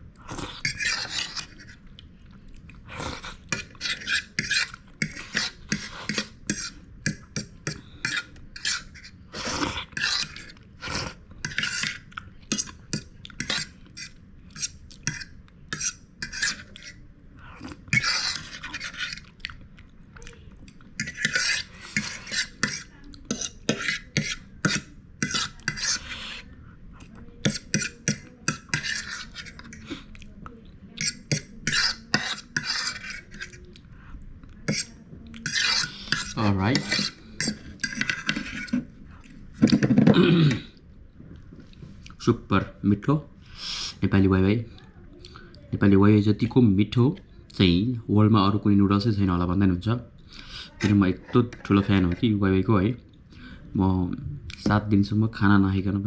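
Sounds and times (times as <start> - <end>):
cutlery clinking and scraping dish: 0.6 - 1.7, 3.5 - 9.1, 11.4 - 17.0, 17.9 - 19.2, 21.0 - 26.2, 27.4 - 30.0, 31.0 - 33.6, 34.7 - 38.9, 39.6 - 40.6.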